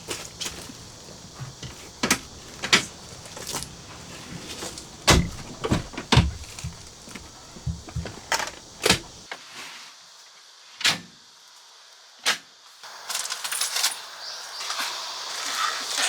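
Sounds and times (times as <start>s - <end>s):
rustling crackling hiss: 0.0s - 9.3s, 12.9s - 16.0s
sharp knocks: 0.4s - 9.2s.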